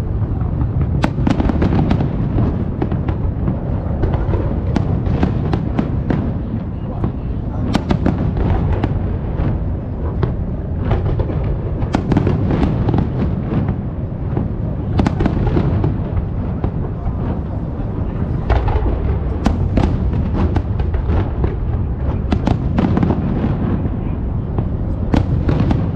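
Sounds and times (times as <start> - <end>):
fireworks booming: 0.0 - 25.9
sharp firework cracks: 0.8 - 6.5, 7.6 - 9.6.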